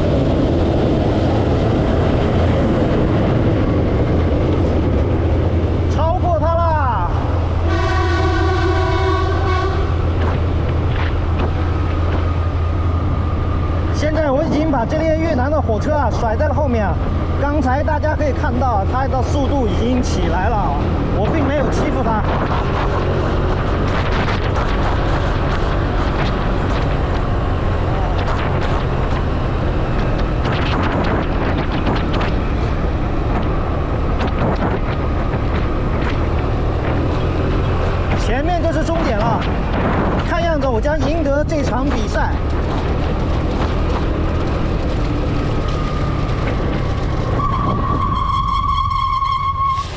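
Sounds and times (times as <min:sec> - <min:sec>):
wind: 0:00.0 - 0:49.9
train horn: 0:07.6 - 0:10.1.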